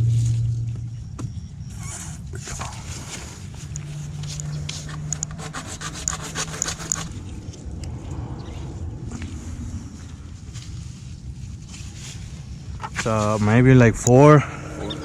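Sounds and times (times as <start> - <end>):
low hum: 0.0 - 15.0
plastic pipe rubbing and scraping: 1.7 - 7.6
light clicks and scrapes: 1.8 - 8.0.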